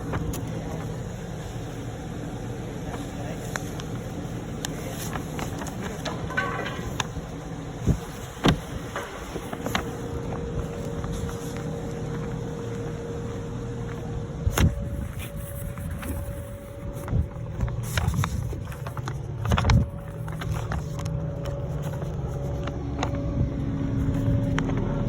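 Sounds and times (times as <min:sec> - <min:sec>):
truck engine running: 0:00.0 - 0:25.0
loud knocks and clunks: 0:06.0 - 0:07.3.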